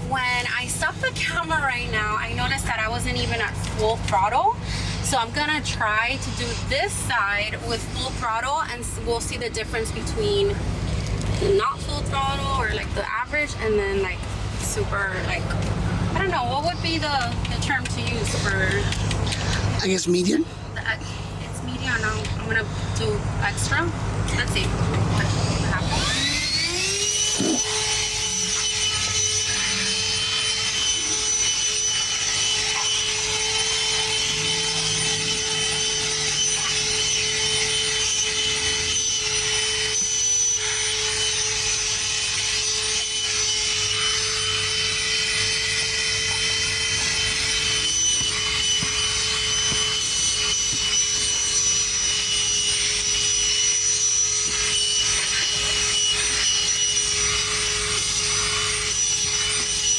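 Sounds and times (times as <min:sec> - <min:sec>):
handheld vacuum whining: 0:00.0 - 0:59.9.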